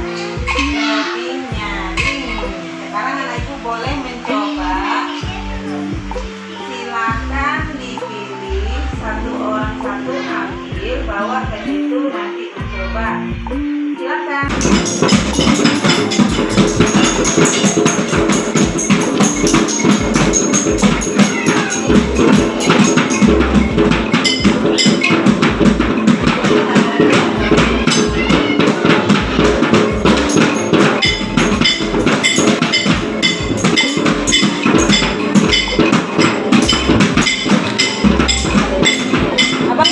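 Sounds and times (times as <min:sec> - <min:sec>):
children banging percussion: 0:00.0 - 0:02.6, 0:14.5 - 0:39.9.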